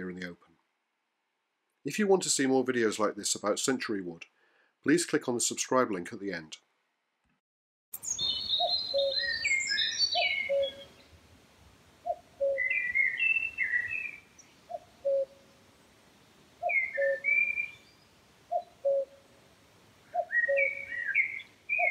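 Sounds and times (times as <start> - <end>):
songbird warbling: 8.0 - 11.1, 12.0 - 15.6, 16.6 - 19.2, 20.0 - 21.9.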